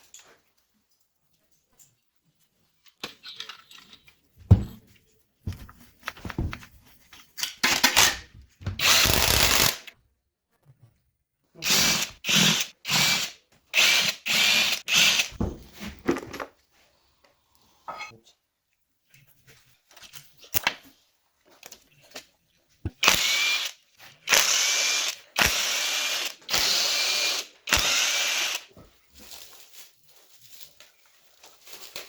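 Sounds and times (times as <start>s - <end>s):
power tool bursts: 8.8s - 9.9s, 11.7s - 15.4s, 23.0s - 28.7s.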